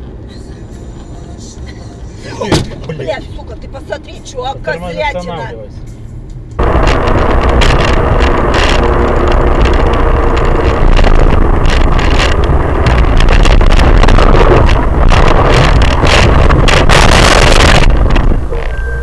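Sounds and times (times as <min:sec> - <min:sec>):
vehicle running rumble: 0:00.0 - 0:19.0
wind buffeting microphone: 0:06.5 - 0:19.0.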